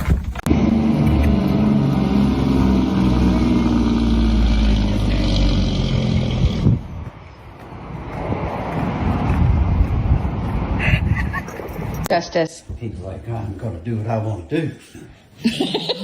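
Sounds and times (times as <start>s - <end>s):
vehicle engine running: 0.3s - 10.5s.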